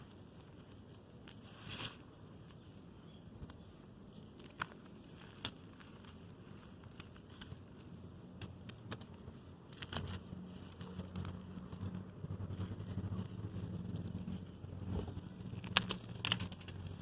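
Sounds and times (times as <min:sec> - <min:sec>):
chalk crunching and crackling: 0:00.0 - 0:17.0
low rustling rumble: 0:09.2 - 0:17.0.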